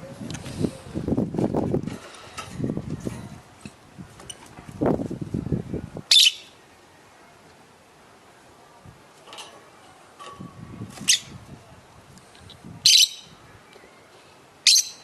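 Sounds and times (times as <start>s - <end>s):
lovebirds chirping: 6.1s - 6.7s, 12.8s - 15.0s.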